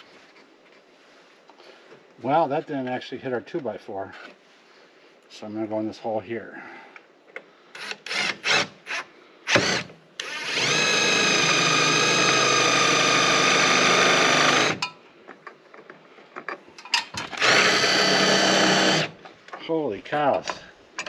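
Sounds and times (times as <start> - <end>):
power drill driving screw into wood: 7.8 - 14.9, 17.1 - 19.2.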